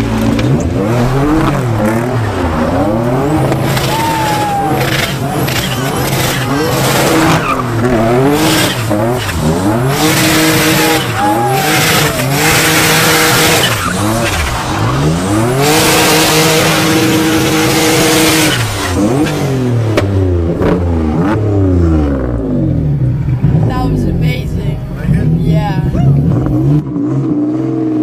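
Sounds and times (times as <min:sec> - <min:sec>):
car engine revving: 0:00.0 - 0:28.0
tire squeal: 0:02.0 - 0:19.5.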